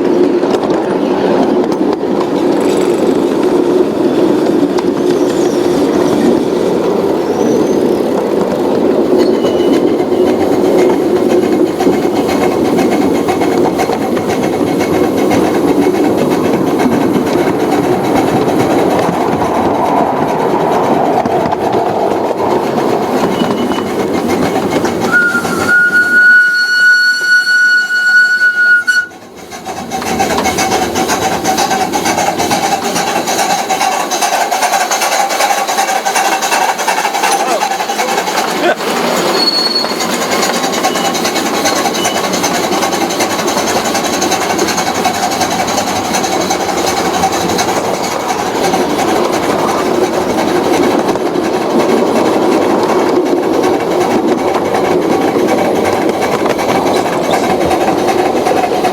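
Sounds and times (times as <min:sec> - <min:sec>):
train rumble and clatter: 0:00.0 - 0:58.9
train horn: 0:25.1 - 0:29.2.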